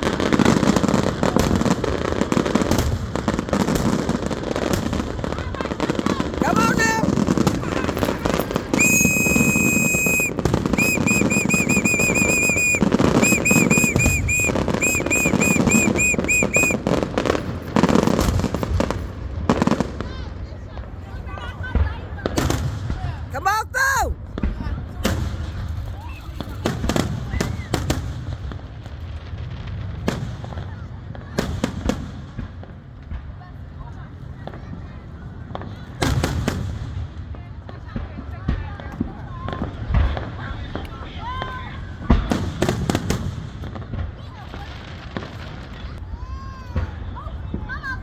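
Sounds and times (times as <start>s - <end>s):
fireworks crackling and popping: 0.0s - 48.0s
high whistles: 8.7s - 16.8s.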